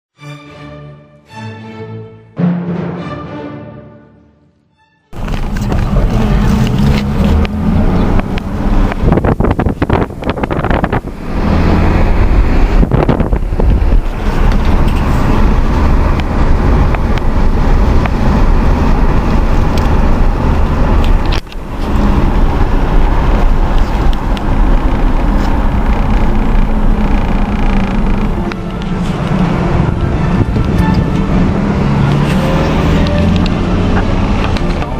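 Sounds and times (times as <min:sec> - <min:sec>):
car engine and road rumble: 0:05.1 - 0:34.9.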